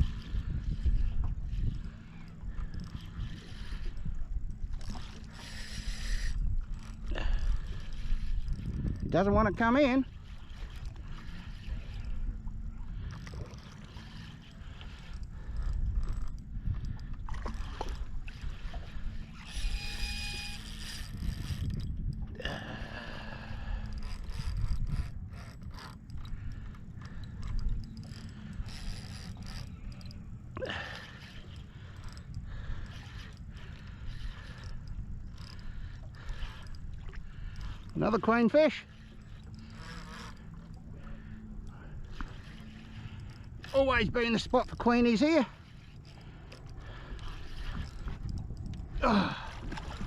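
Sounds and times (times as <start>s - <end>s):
steady low rumble: 0.0s - 19.2s, 21.1s - 38.2s
fishing reel ratcheting: 0.0s - 22.2s, 22.9s - 50.0s.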